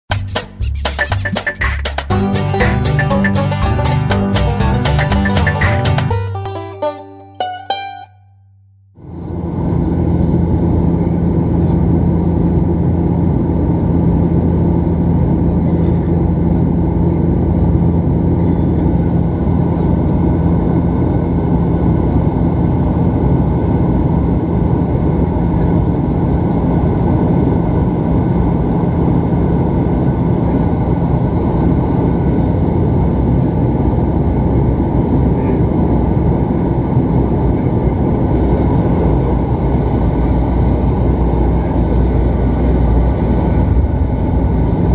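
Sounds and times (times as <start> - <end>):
turboprop engine drone: 9.0 - 44.9.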